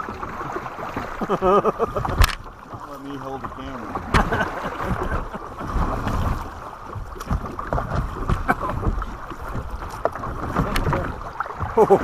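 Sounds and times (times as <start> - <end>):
kayak hull knocking: 0.0 - 12.0
water sloshing: 0.0 - 12.0.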